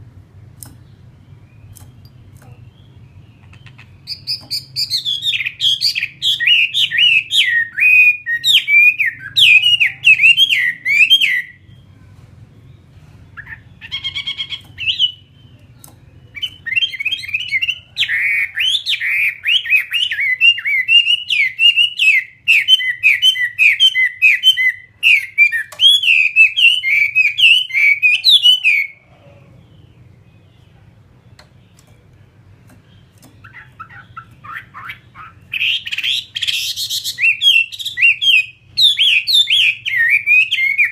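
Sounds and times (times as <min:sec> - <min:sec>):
faint low hum: 0:00.0 - 0:40.9
songbird singing whistled phrases: 0:00.8 - 0:11.9, 0:13.4 - 0:29.0, 0:32.8 - 0:40.9.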